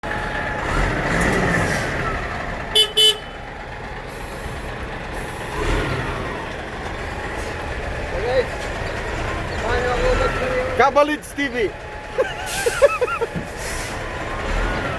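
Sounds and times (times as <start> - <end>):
road traffic: 0.0 - 14.9
vehicle horn toots: 2.7 - 3.4.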